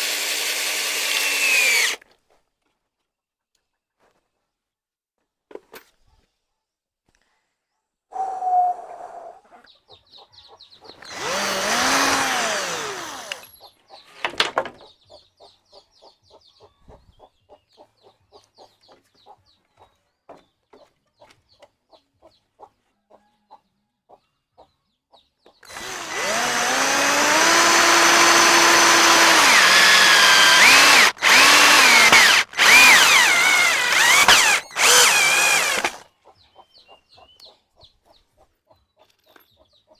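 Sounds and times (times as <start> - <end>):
electric drill running: 0.0 - 2.0, 11.0 - 13.6, 25.6 - 36.0.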